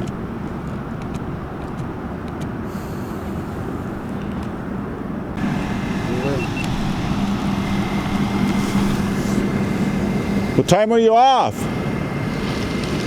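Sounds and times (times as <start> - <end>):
vehicle rumble: 0.0 - 13.0
steady hum: 2.7 - 13.0.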